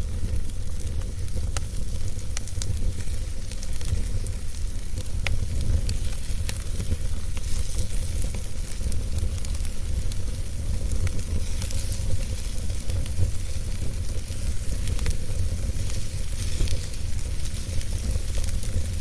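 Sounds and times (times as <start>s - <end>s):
fire crackles and pops: 0.0s - 19.0s
fire rumbling and hissing: 0.0s - 19.0s.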